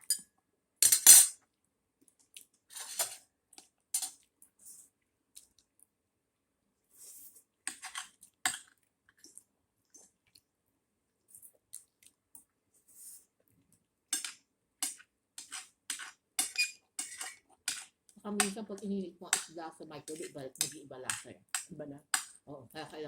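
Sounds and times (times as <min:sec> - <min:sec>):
cutlery scraping plates: 0:00.8 - 0:01.4, 0:02.7 - 0:03.2, 0:04.0 - 0:04.2, 0:07.7 - 0:08.6, 0:14.2 - 0:18.5, 0:20.1 - 0:22.3.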